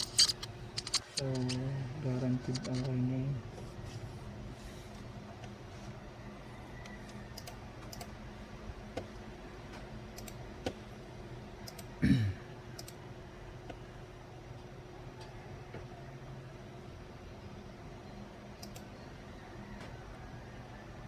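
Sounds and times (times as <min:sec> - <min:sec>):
keyboard and mouse clicks: 0:00.0 - 0:01.7, 0:02.3 - 0:03.0, 0:06.8 - 0:08.2, 0:08.9 - 0:10.8, 0:11.6 - 0:12.0, 0:12.8 - 0:13.0, 0:18.6 - 0:18.9
steady low hum: 0:00.0 - 0:21.0.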